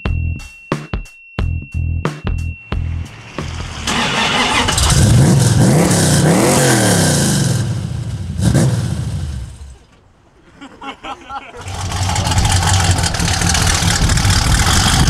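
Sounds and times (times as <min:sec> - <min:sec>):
car engine driving past: 0:02.8 - 0:06.3
engine throttle burst: 0:02.8 - 0:09.7, 0:11.6 - 0:15.0.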